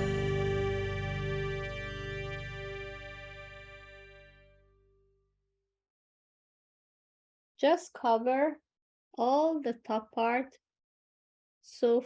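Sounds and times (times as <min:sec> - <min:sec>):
background music: 0:00.0 - 0:04.6.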